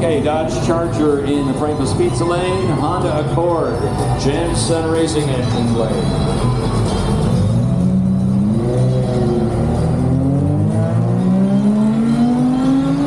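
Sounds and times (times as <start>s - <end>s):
drag racing car engine revving: 6.0s - 13.0s.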